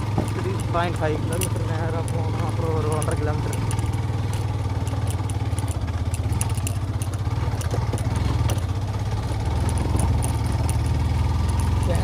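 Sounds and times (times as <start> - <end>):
light clicks and rattles: 0.0 - 12.0
motorcycle engine running: 0.0 - 12.0.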